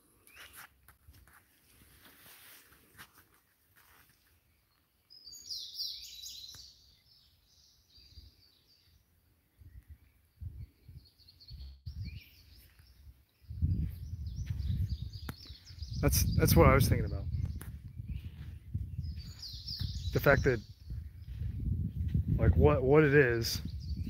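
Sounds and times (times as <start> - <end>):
songbirds chirping: 1.6 - 24.0
microphone bumps and rumbles: 13.5 - 22.9, 23.6 - 24.0.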